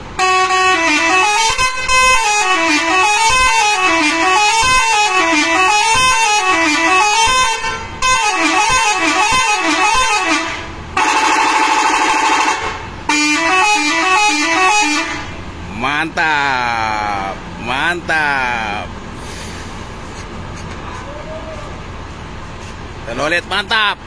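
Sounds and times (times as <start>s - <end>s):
bus horn playing a tune: 0.0s - 15.6s
horn steady chord: 0.2s - 15.4s.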